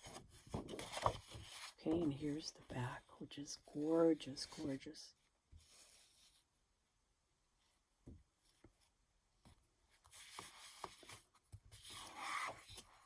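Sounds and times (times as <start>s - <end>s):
paper rustling: 0.0s - 3.0s, 10.0s - 13.0s.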